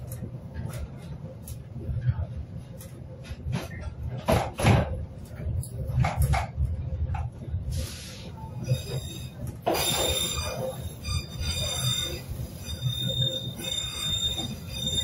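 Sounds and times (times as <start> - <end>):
train rumbling on track: 0.0 - 15.0
train wheels squealing: 8.6 - 15.0.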